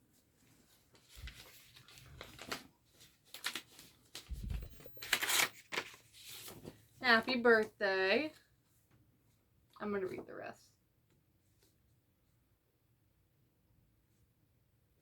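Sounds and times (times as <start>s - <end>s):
paper card rustling: 1.0s - 6.8s
dull low thumps: 4.3s - 5.0s.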